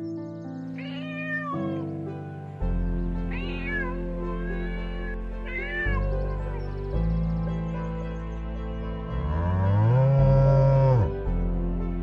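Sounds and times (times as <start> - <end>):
music with slow sustained chords: 0.0 - 12.0
cat meowing: 0.8 - 1.9, 3.3 - 6.2.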